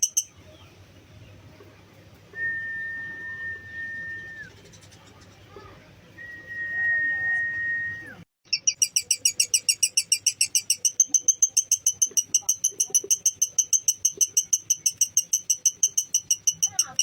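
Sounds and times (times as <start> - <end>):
lovebird chattering trill: 0.0 - 0.4, 8.5 - 17.0.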